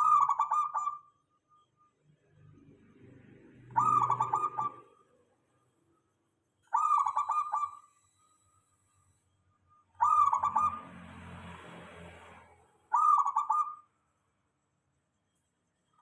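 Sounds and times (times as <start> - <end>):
dove cooing: 0.0 - 1.0, 3.8 - 4.8, 6.7 - 7.8, 10.0 - 10.8, 12.9 - 13.8.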